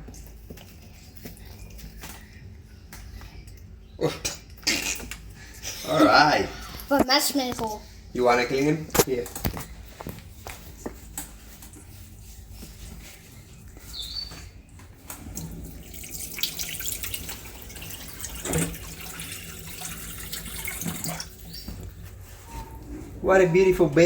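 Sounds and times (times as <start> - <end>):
water running from a tap: 15.1 - 21.6.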